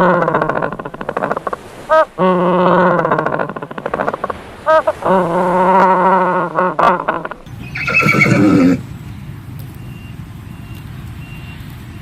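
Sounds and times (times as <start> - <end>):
horse whinnying: 6.8 - 8.8.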